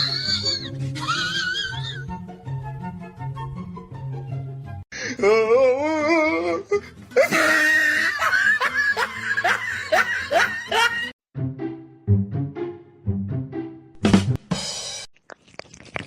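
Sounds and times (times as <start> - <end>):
music: 0.0 - 15.1
hearty laughter: 7.2 - 11.1.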